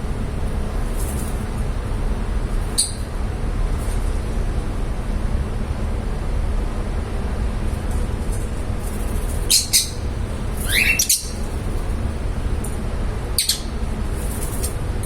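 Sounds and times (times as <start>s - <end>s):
lovebirds chirping and squawking: 9.4s - 11.7s, 13.4s - 13.7s.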